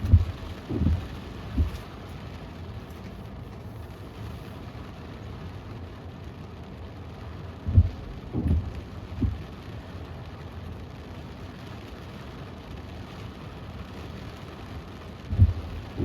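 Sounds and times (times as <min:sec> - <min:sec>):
dull low thumps: 0:00.0 - 0:01.9, 0:07.6 - 0:09.6, 0:15.3 - 0:16.0
heavy rain on a car: 0:00.0 - 0:16.0.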